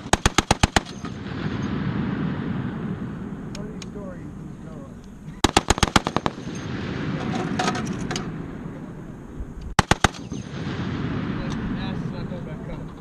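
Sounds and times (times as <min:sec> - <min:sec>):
machine gun automatic bursts: 0:00.0 - 0:01.2, 0:05.4 - 0:07.6, 0:09.8 - 0:10.6.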